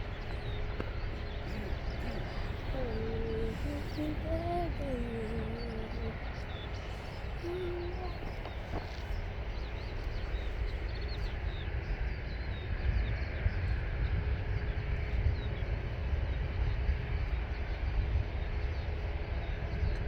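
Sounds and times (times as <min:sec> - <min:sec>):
small birds chirping: 0:00.0 - 0:13.8
distant jet airliner hum: 0:00.0 - 0:20.0
wind rumble on microphone: 0:00.0 - 0:20.0.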